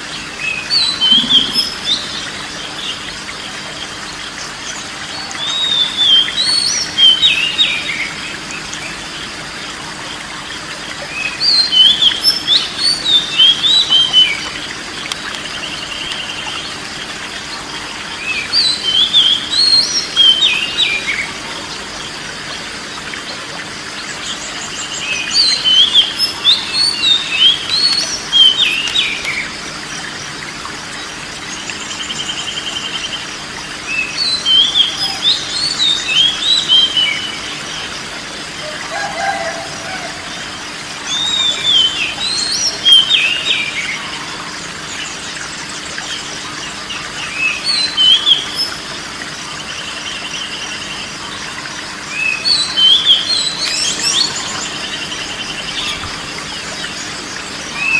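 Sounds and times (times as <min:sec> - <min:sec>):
bird singing whistled phrases: 0:00.5 - 0:02.3, 0:05.2 - 0:08.1, 0:41.1 - 0:44.1.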